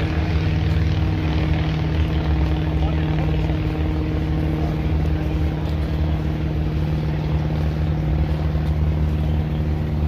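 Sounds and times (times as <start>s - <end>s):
engine humming: 0.0s - 10.0s.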